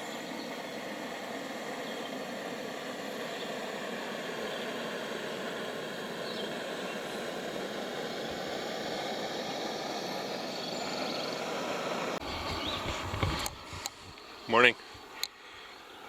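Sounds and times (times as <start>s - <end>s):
rushing outdoor ambience: 0.0s - 16.0s
faint bird chirps: 12.3s - 13.1s.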